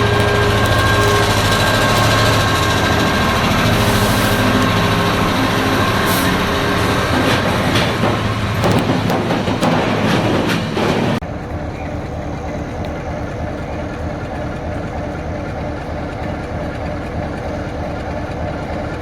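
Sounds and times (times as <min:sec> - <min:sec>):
whining tones: 0:00.0 - 0:09.7
train engine drone: 0:00.0 - 0:19.0.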